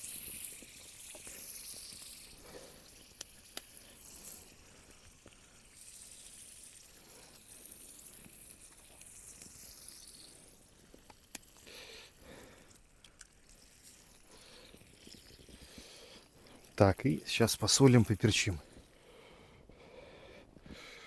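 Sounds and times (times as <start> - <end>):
ham and eggs sizzling in a pan: 0.0 - 19.0.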